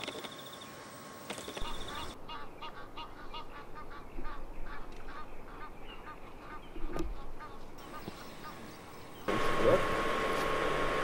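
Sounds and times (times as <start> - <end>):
goose-like bird honks: 1.6 - 8.6.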